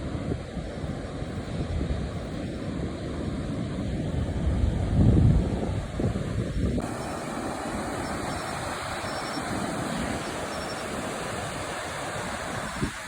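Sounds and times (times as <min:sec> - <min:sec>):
surf breaking on shore: 0:00.0 - 0:13.0
wind buffeting microphone: 0:00.0 - 0:13.0.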